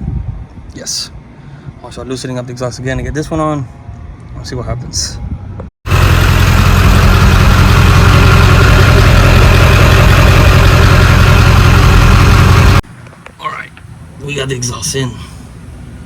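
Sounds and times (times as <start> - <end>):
diesel engine idling: 5.9 - 12.8.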